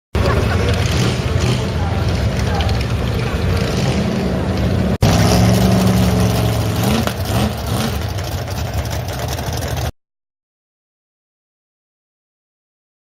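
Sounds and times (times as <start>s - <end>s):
car engine revving: 0.2s - 9.9s.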